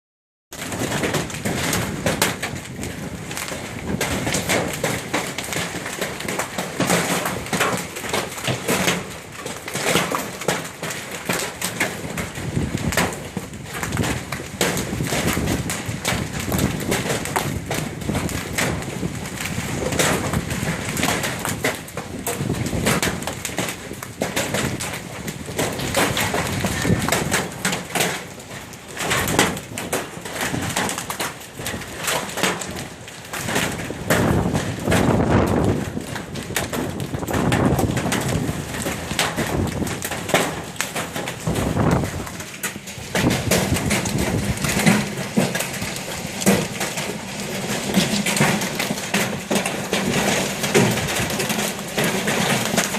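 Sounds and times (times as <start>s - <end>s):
hailstones pelting down: 0.5s - 52.9s.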